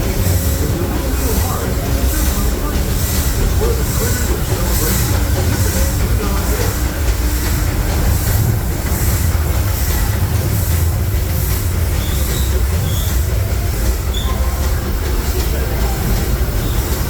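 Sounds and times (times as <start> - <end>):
train wheels rumbling on rails: 0.0 - 17.0
high wheel squeals: 11.9 - 14.7.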